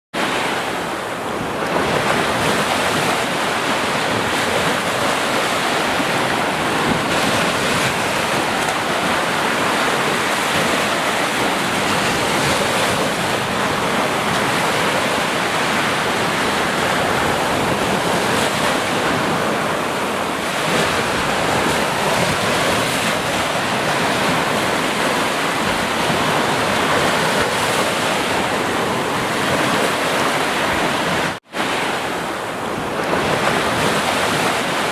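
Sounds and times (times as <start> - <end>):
ocean waves breaking: 0.2 - 34.9.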